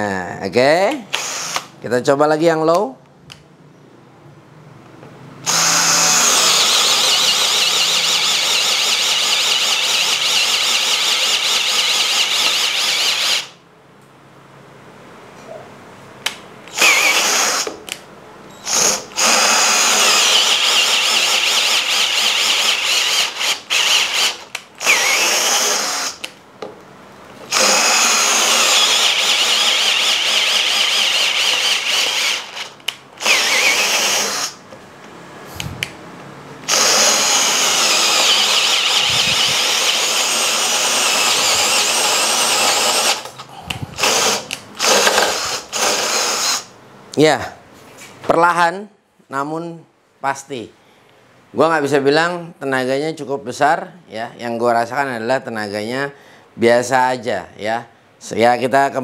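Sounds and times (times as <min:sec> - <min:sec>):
drill motor whining: 0:01.1 - 0:01.7, 0:05.4 - 0:13.6, 0:16.7 - 0:17.8, 0:18.6 - 0:26.3, 0:27.5 - 0:34.6, 0:36.7 - 0:46.7.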